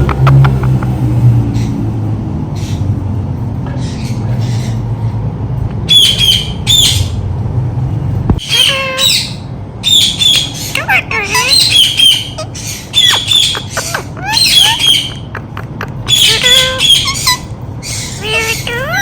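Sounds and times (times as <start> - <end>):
parakeet squawking: 5.9 - 7.2, 8.4 - 19.0.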